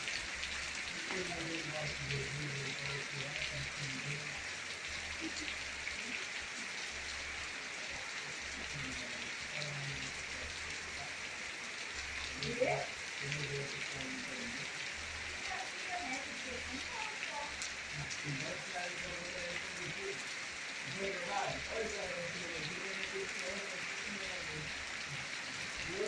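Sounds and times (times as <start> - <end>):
light rain taps: 0.0 - 6.4
steady rain falling: 0.0 - 26.0.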